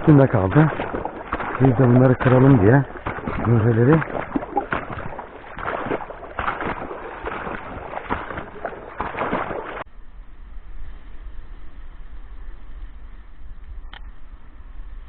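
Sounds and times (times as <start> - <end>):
water sloshing: 0.0 - 9.9.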